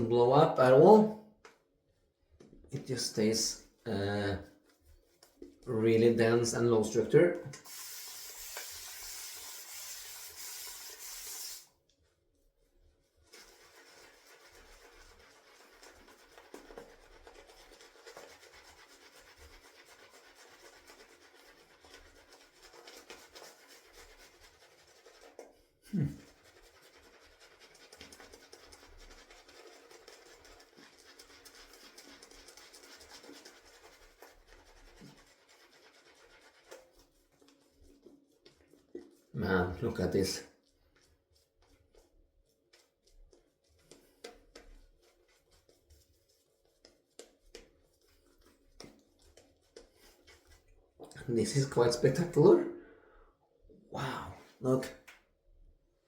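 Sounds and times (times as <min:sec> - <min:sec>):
shaving brush swishing lather: 0:02.8 - 0:52.7.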